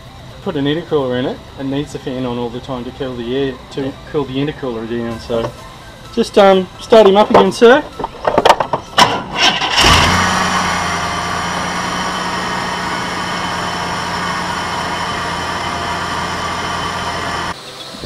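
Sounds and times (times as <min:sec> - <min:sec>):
car engine starting and idling: 0:08.8 - 0:17.8.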